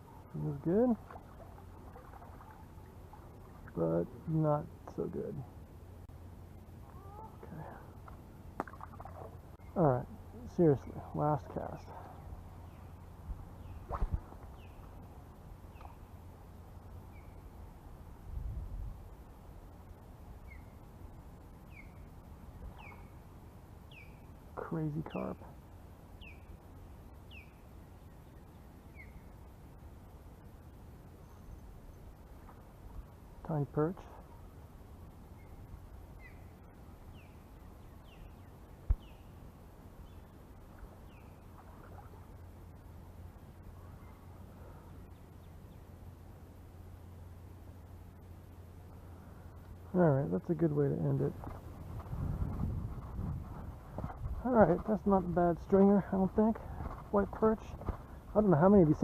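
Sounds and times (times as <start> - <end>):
low outdoor rumble: 0.0 - 59.0
wind rumble on microphone: 11.6 - 16.1, 17.1 - 23.1, 50.9 - 59.0
bird chirping: 22.7 - 23.2, 26.2 - 26.6, 27.2 - 29.3, 35.3 - 39.4.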